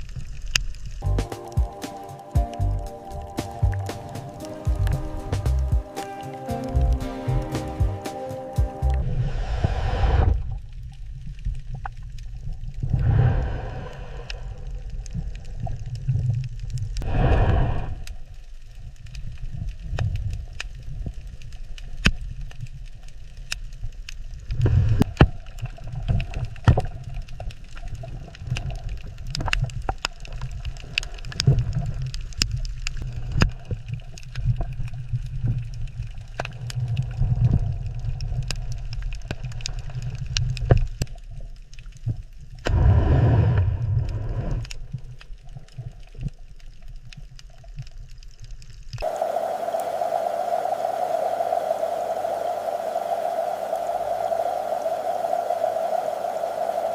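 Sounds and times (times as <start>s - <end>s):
rumble and gurgle of water: 0.0s - 1.8s, 8.9s - 56.9s
sharp clicks and crackles: 17.8s - 42.8s, 43.5s - 49.9s.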